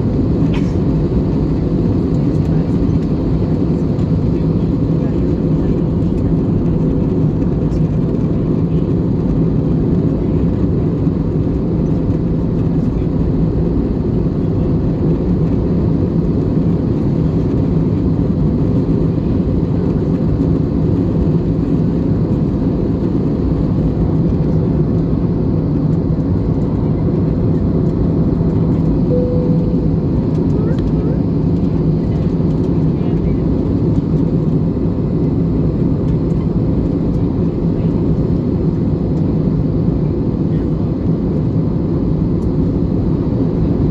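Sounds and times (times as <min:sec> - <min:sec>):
airplane cabin engine roar: 0:00.0 - 0:43.9
faint steady hum: 0:28.9 - 0:31.7.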